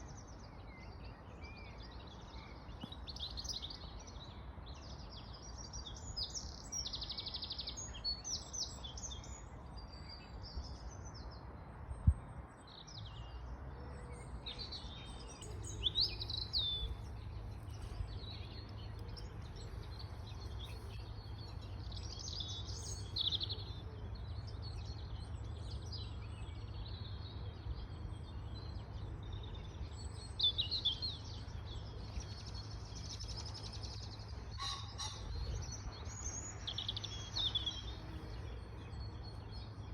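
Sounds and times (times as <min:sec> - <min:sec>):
birds chirping and trilling: 0:12.1 - 0:39.9.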